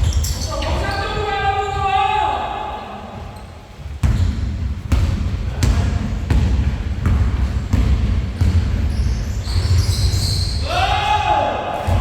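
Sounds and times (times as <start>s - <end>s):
basketball bouncing on court floor: 3.8s - 10.5s.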